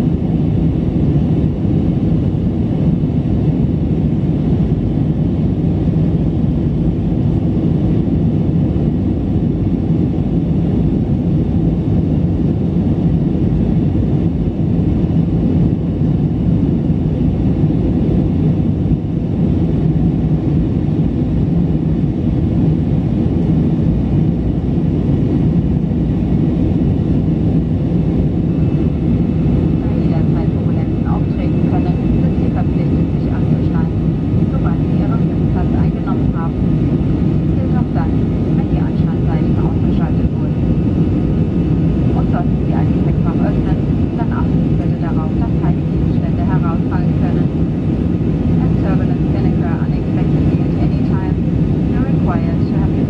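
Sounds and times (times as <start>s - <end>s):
jet engines droning in cabin: 0.0s - 53.0s
faint steady hum: 25.5s - 53.0s.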